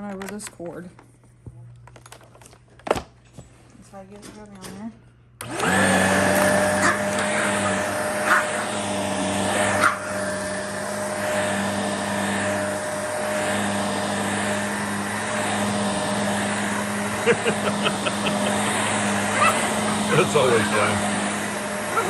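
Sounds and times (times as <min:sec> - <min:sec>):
vacuum cleaner running: 0:05.4 - 0:22.0.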